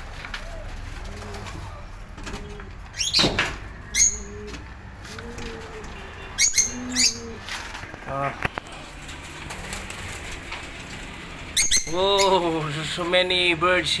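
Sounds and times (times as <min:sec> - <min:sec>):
doves cooing: 0:00.0 - 0:12.5
sharp high-pitched bird calls: 0:02.9 - 0:04.5, 0:06.1 - 0:07.4, 0:11.5 - 0:12.4.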